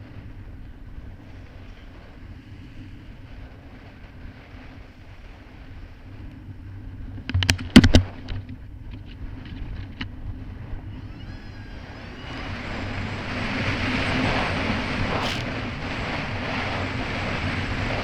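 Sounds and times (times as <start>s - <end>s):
jet ski engine running: 0.0s - 18.0s
wind and water rushing: 9.7s - 18.0s.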